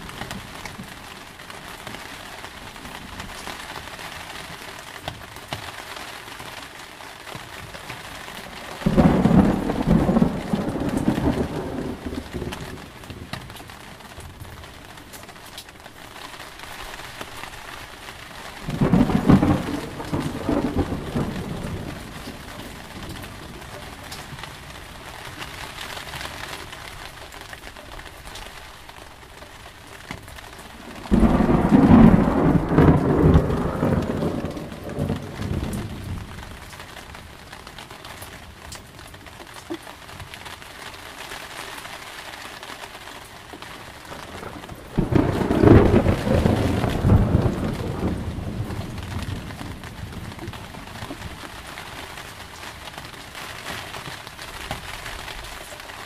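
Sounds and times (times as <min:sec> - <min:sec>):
heavy rain: 0:00.0 - 0:56.0
thunder rumbling: 0:08.3 - 0:14.5, 0:16.9 - 0:25.4, 0:30.1 - 0:37.4, 0:44.0 - 0:52.6.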